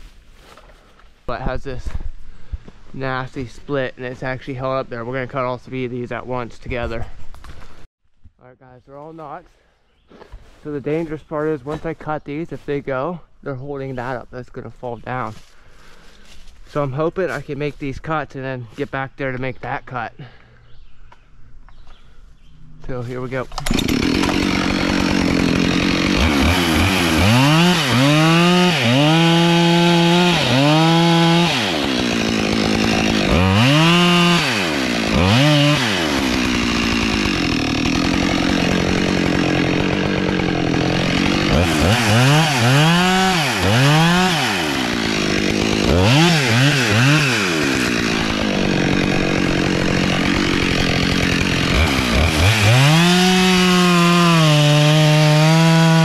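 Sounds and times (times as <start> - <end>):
chainsaw cutting wood: 23.5 - 56.0.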